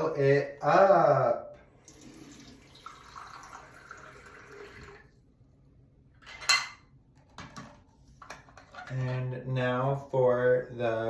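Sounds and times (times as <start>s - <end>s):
water running into a tub: 1.8s - 5.3s.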